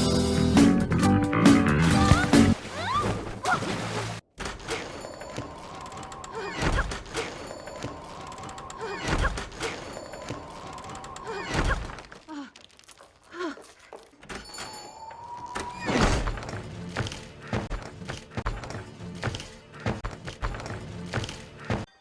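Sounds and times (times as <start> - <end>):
film music: 0.0 - 2.6, 14.9 - 22.0.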